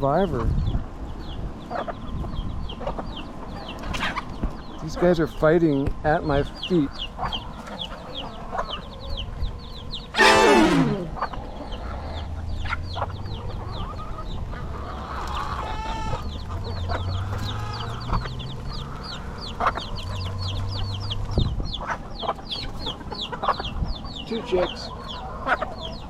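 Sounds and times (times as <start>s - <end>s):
chicken squawk falling in pitch: 10.2s - 11.1s
hens clucking: 10.2s - 11.1s.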